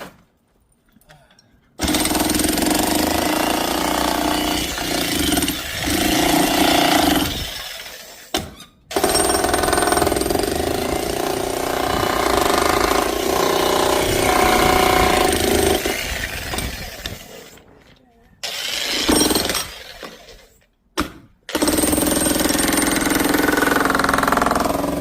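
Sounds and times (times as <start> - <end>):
demolition hammer chipping: 1.8 - 7.6, 8.3 - 17.2, 21.0 - 25.0.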